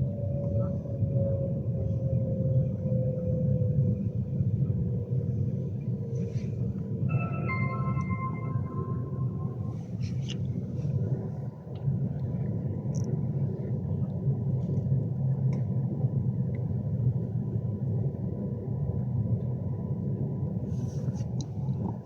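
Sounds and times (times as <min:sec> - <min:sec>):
train interior rumble: 0:00.0 - 0:22.0
electronic chime tone: 0:07.0 - 0:10.1.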